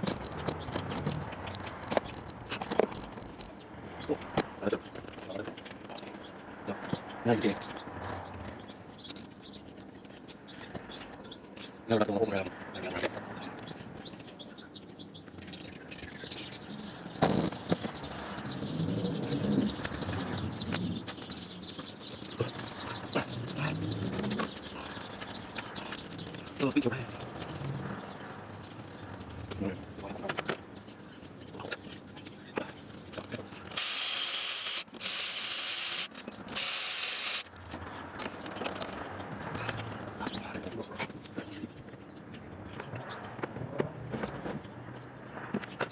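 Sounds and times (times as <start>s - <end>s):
birds chirping and cooing: 0.0s - 9.7s, 10.3s - 33.8s, 37.8s - 45.9s
pressurised spray hissing: 33.8s - 37.5s.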